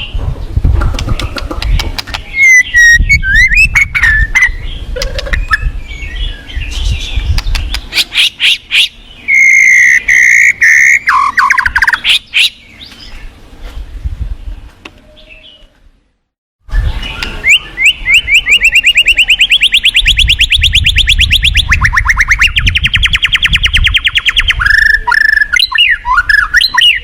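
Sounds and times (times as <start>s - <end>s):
bird singing whistles and clicks: 0.9s - 5.7s, 7.3s - 13.0s, 17.0s - 27.0s
fast rattling bird trill: 0.9s - 12.9s, 17.5s - 27.0s.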